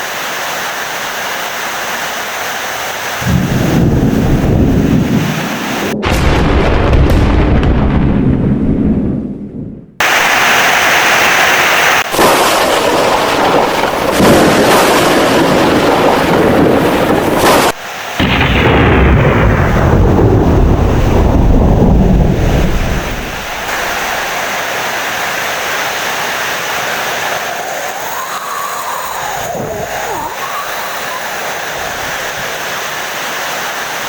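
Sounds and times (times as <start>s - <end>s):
heavy rain: 0.0s - 6.2s, 10.0s - 34.0s
loud thunder rumbling: 3.2s - 10.6s, 12.0s - 24.4s.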